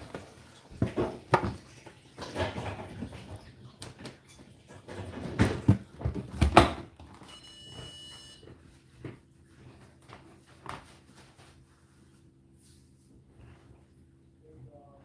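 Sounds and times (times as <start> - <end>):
short high ringing tone: 7.3 - 8.4.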